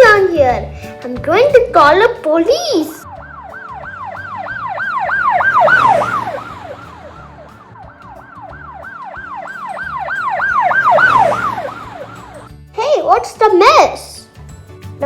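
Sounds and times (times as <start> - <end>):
police siren yelping: 3.0 - 12.5.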